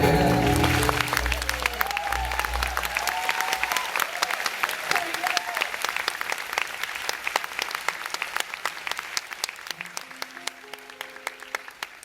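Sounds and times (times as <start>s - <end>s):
held instrument notes: 0.0s - 3.1s
audience applause: 0.0s - 12.0s.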